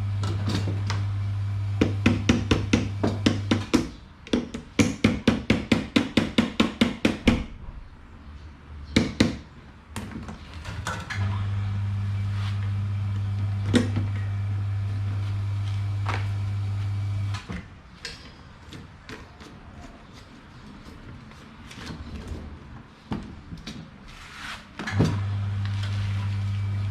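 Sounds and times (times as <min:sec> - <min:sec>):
electrical mains hum: 0:00.0 - 0:03.8, 0:10.4 - 0:18.7, 0:24.8 - 0:26.9.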